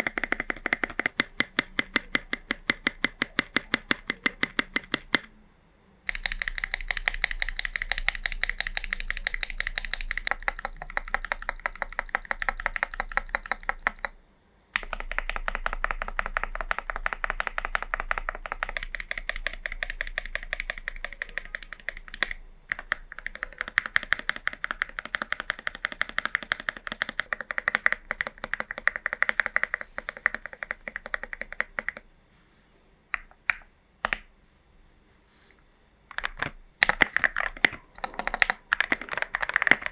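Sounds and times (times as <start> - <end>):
mechanical keyboard typing: 0.0 - 5.3, 6.1 - 14.2, 14.8 - 32.1, 36.1 - 39.9.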